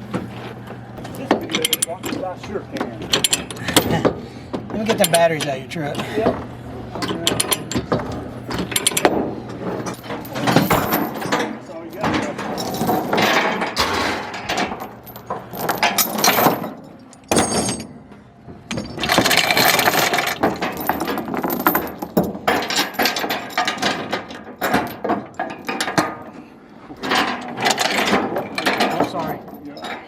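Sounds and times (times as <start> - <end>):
metal objects clinking and rattling: 1.2 - 2.3, 3.1 - 4.1, 8.5 - 18.0, 18.7 - 26.3, 27.0 - 30.0.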